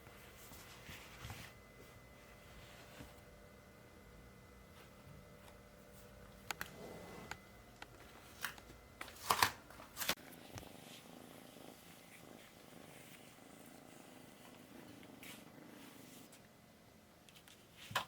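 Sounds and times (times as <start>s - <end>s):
kitten purring softly: 10.2s - 16.5s.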